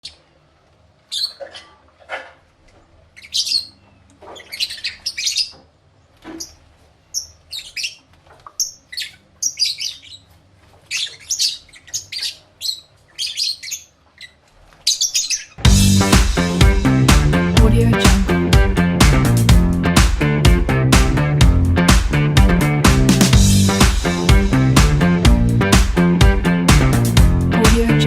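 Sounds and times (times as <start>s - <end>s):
lovebirds chirping and squawking: 1.1s - 1.8s, 3.1s - 16.2s.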